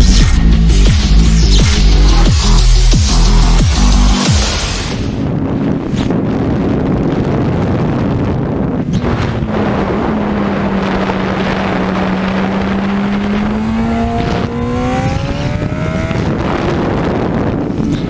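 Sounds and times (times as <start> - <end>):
wind noise on microphone: 0.0 - 18.0
racing motorcycle engine accelerating: 9.0 - 18.0.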